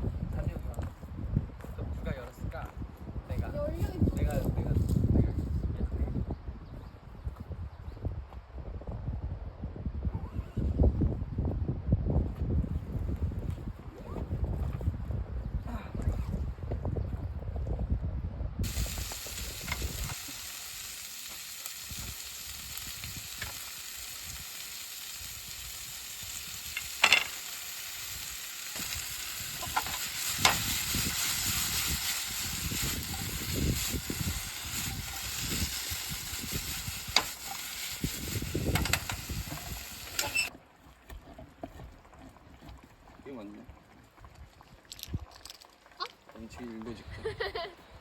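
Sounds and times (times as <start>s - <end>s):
food sizzling in a pan: 18.6s - 40.5s.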